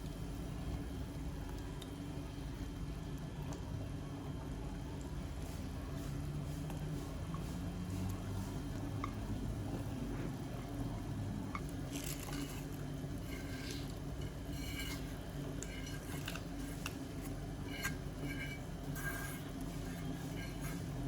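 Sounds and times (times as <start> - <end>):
steady low hum: 0.0 - 21.0
dishes and utensils clinking: 13.3 - 20.9.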